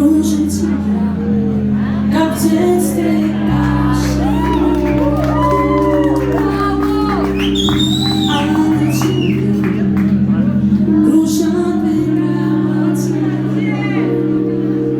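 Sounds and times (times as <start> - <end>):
sustained keyboard chords: 0.0 - 14.9
audience voices and whoops: 3.0 - 10.2.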